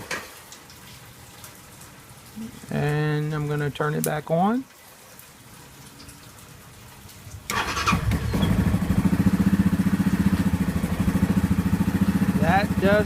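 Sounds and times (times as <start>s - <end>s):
electric starter cranking: 7.5s - 9.1s
engine idling: 7.5s - 13.0s.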